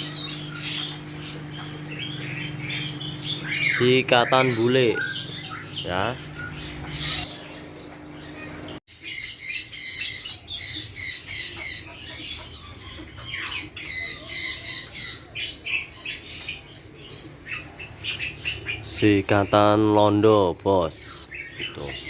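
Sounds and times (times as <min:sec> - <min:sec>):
caged songbirds chirping: 0:00.0 - 0:22.0.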